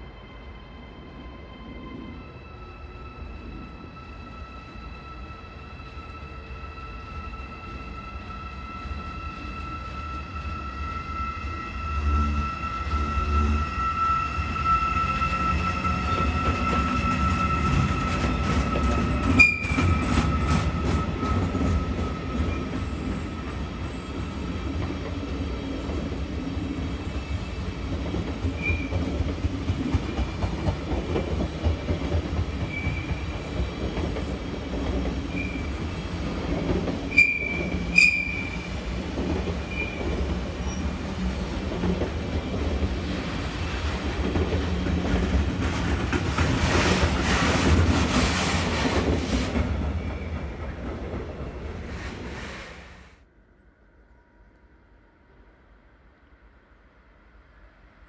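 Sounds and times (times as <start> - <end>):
train wheels rumbling on rail: 8.8 - 53.2
high wheel squeal: 9.0 - 24.2, 37.1 - 38.7.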